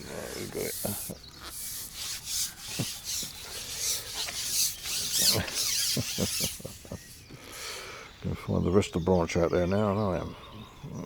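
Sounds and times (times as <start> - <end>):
fishing pole sections rasping: 0.0 - 7.4.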